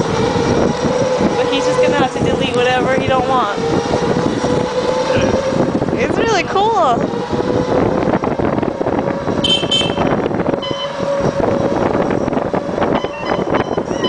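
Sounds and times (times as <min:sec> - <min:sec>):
small engine running: 0:00.0 - 0:08.0
wind on microphone: 0:00.0 - 0:14.0
high-pitched horn toot: 0:09.4 - 0:11.4, 0:12.9 - 0:14.0.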